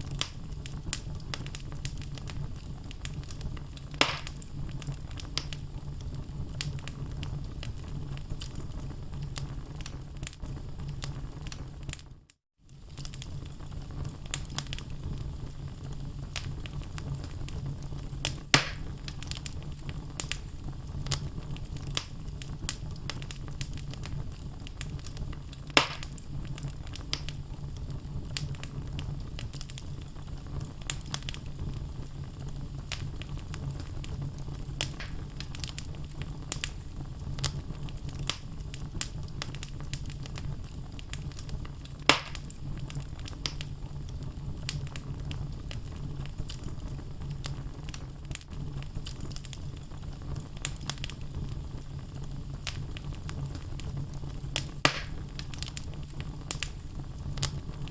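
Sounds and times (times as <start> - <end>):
sharp fire pops: 0.0 - 12.0, 12.7 - 57.9
low rumble of flames: 0.0 - 57.9
logs crackling: 0.1 - 5.6, 18.2 - 19.6, 24.7 - 27.4, 32.9 - 36.8, 37.4 - 43.6, 54.6 - 57.9.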